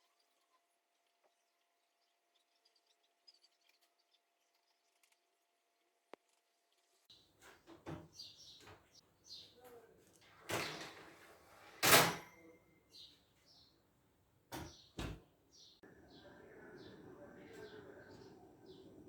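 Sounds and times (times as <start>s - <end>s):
kitchen knocks and clatters: 7.4s - 8.8s, 10.4s - 12.6s, 14.5s - 15.2s.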